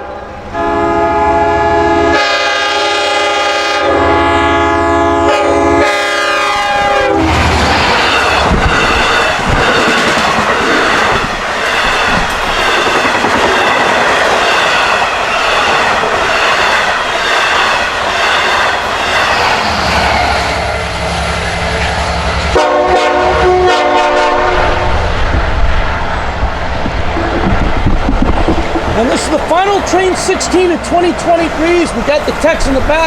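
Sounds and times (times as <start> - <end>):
train horn blasts: 0.0 - 7.4, 22.5 - 25.0
diesel locomotive rumble: 0.0 - 33.0
train wheels clickety-clack: 7.3 - 20.5, 26.4 - 33.0.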